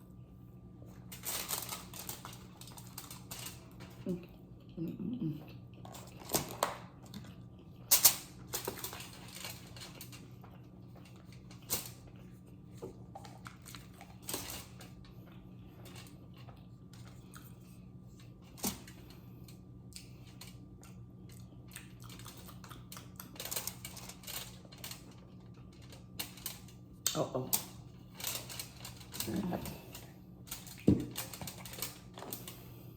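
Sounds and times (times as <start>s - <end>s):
steady low hum: 0.0s - 32.9s
chewing crunches and mouth clicks: 5.4s - 6.3s, 6.9s - 8.5s, 14.9s - 17.9s, 19.9s - 23.9s.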